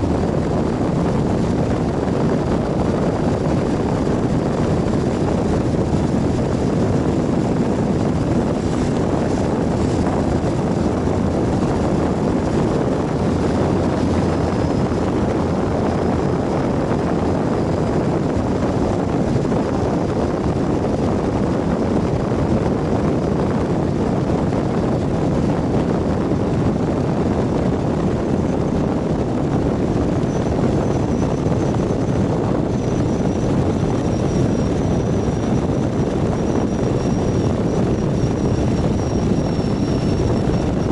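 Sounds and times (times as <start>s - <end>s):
motorcycle engine running: 0.0s - 20.1s
wind and road noise: 0.0s - 40.9s.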